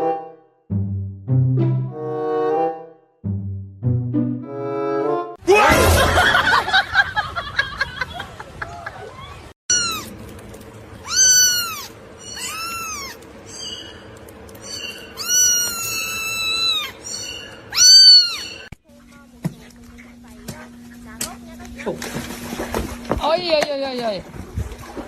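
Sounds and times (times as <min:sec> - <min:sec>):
loud sudden noise: 0:05.5 - 0:06.7
cat meowing: 0:09.7 - 0:10.1, 0:11.0 - 0:13.2, 0:15.1 - 0:18.7.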